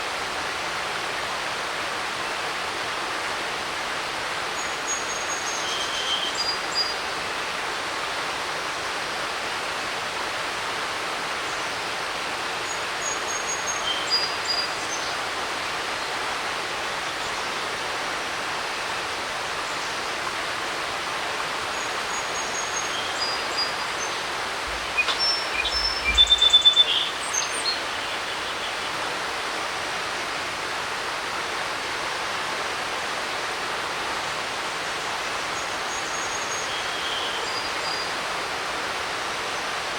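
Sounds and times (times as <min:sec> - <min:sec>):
creek rushing: 0:00.0 - 0:39.9
songbird whistling: 0:24.9 - 0:27.9.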